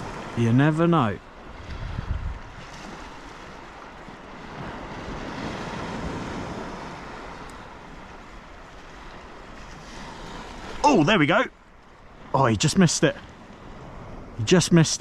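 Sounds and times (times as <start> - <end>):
sea water washing: 0.0 - 14.8
wind buffeting microphone: 1.2 - 10.8.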